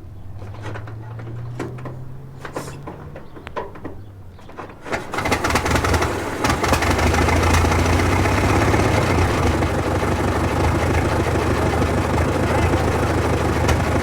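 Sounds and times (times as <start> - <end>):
old car engine chugging: 0.1 - 14.0.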